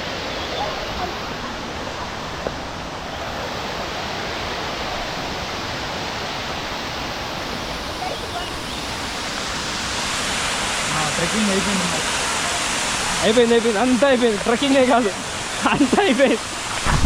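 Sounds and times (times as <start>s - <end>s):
waterfall pouring: 8.9s - 17.0s.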